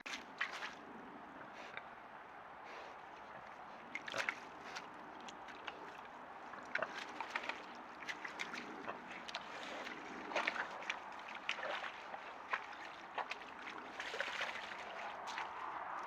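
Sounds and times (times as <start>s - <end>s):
boars splashing in mud: 0.0s - 16.0s.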